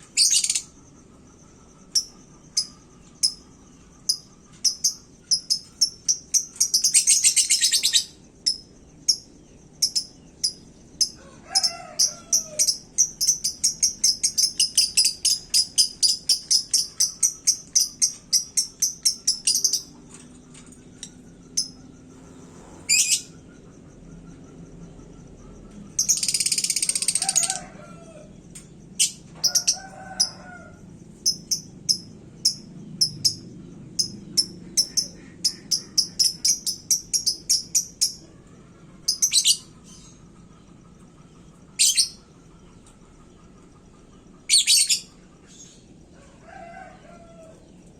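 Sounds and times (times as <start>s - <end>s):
lovebird high chirps: 0.0s - 0.8s, 1.4s - 21.9s, 22.6s - 23.5s, 25.9s - 27.6s, 34.0s - 38.3s, 39.0s - 40.4s, 41.7s - 42.2s, 44.4s - 45.8s
lovebird dense trills: 0.0s - 47.9s.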